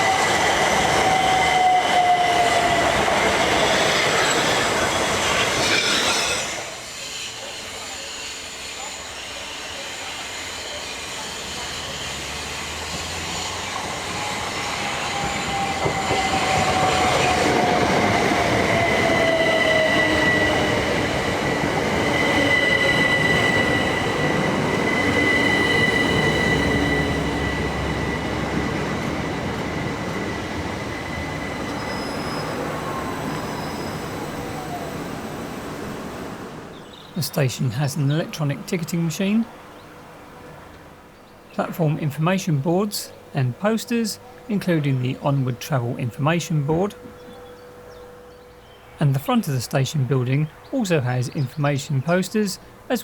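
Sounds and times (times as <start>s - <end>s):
electric train motor whine: 0.0s - 36.9s
high squeal from train: 0.0s - 37.2s, 46.9s - 49.0s.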